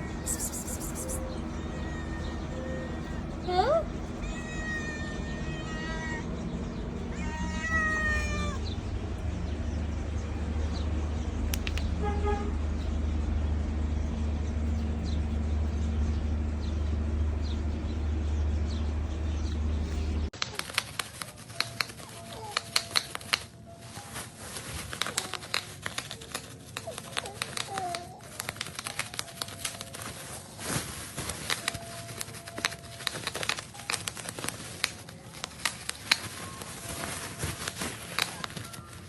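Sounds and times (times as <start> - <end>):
cat meowing: 0.0 - 6.3, 7.1 - 8.7
rapid sharp clicks: 20.4 - 23.6, 24.9 - 30.0, 31.4 - 36.8.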